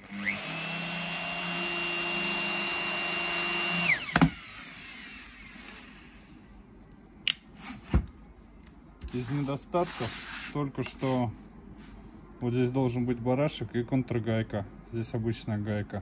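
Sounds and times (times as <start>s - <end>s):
router high-pitched whine: 0.0s - 6.2s.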